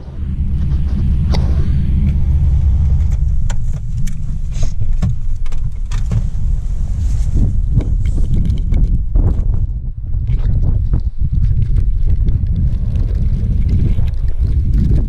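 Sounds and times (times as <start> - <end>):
sharp clicks and crunches: 0.0 - 15.0
wind buffeting microphone: 0.0 - 15.0.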